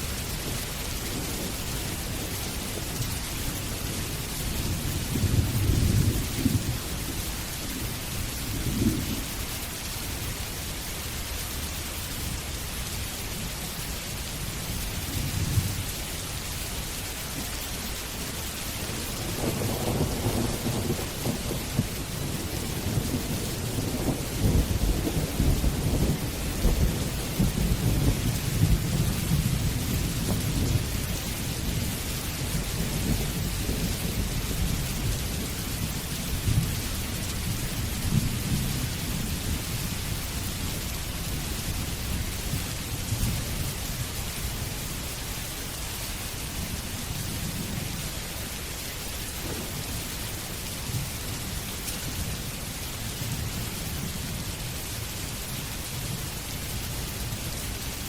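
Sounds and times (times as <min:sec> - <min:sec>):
steady rain falling: 0:00.0 - 0:58.0
thunder rumbling: 0:03.6 - 0:09.4, 0:18.8 - 0:44.3, 0:48.8 - 0:52.4.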